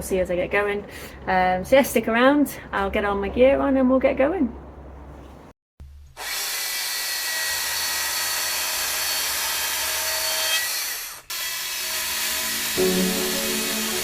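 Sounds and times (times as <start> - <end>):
chainsaw cutting wood: 6.2 - 12.9.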